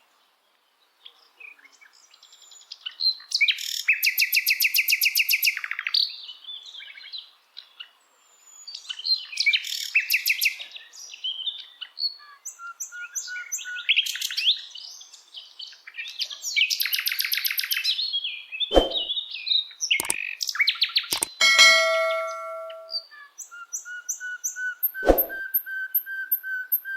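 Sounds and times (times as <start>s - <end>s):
sharp clicks: 21.2s - 22.9s
short ringing tone: 21.2s - 23.0s.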